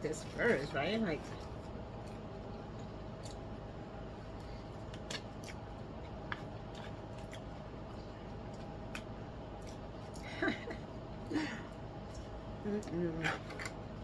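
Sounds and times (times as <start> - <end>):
steady low hum: 0.0 - 14.0
chewing clicks: 2.0 - 3.5.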